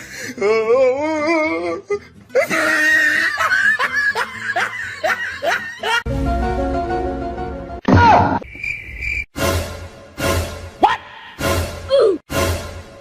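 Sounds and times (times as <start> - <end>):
music: 0.0 - 7.8, 9.4 - 13.0
hearty laughter: 2.4 - 6.1.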